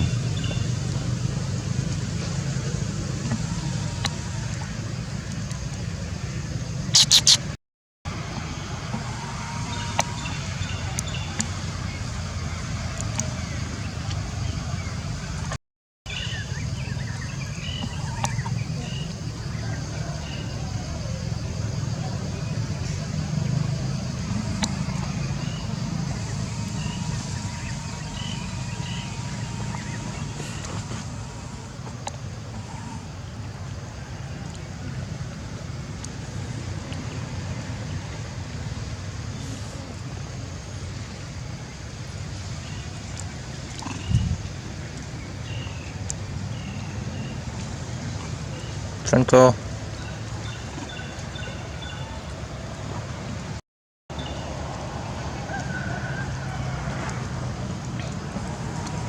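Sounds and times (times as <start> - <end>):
low outdoor rumble: 0.0 - 59.0
short high chirps: 7.0 - 7.5.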